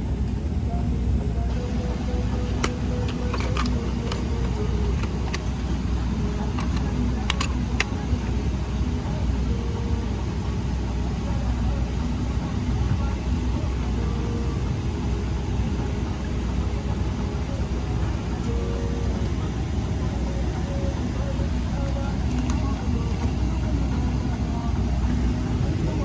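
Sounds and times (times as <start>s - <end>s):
airliner cabin rumble: 0.0s - 26.0s
faint background voices: 0.0s - 26.0s
sharp clicks: 2.6s - 8.3s.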